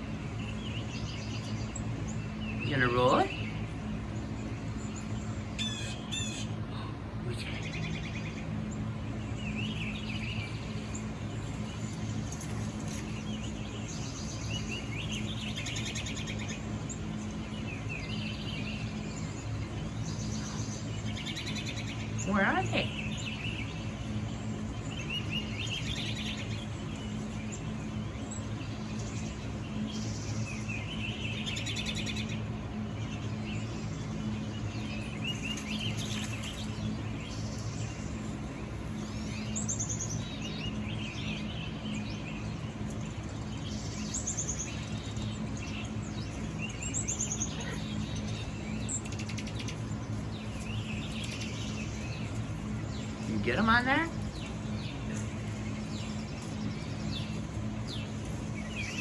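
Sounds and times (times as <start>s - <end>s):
birdsong through phone speaker: 2.2s - 3.7s, 19.9s - 23.7s, 49.7s - 59.0s.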